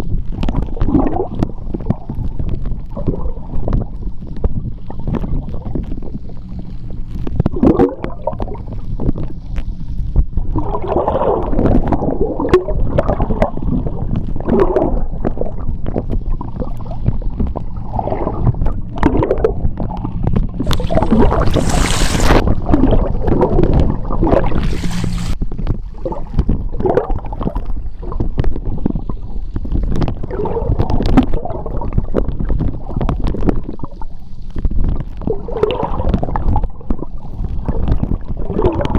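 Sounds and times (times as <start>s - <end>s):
underwater churning rumble: 0.1s - 38.9s
hissing bursts of bubbles: 20.6s - 25.4s.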